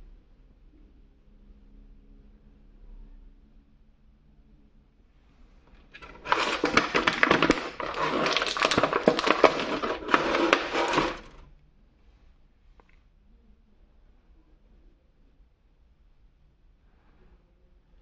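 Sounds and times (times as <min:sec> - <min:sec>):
plastic packaging crinkling: 0:06.0 - 0:11.4.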